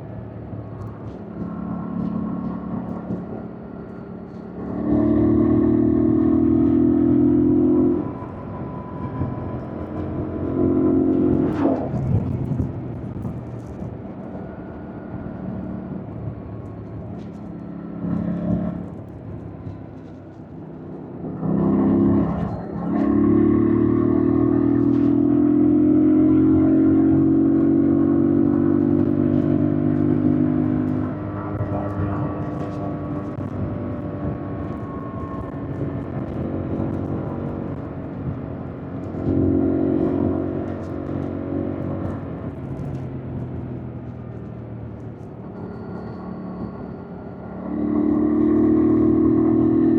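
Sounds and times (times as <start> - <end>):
motorcycle engine accelerating: 3.9 - 13.8, 21.2 - 45.7, 47.4 - 49.9.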